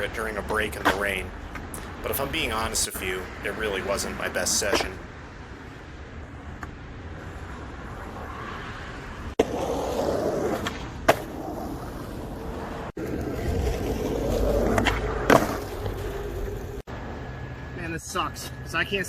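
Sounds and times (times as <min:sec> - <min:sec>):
skateboard wheels rolling on pavement: 0:00.0 - 0:17.2
skateboard clack: 0:00.3 - 0:02.2, 0:03.7 - 0:05.0, 0:09.4 - 0:12.3, 0:13.0 - 0:16.8.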